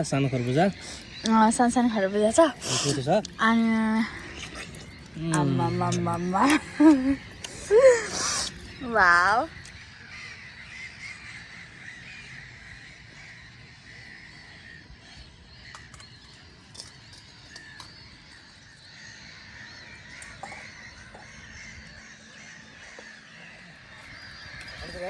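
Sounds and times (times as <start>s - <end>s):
birds calling: 0.0s - 25.0s.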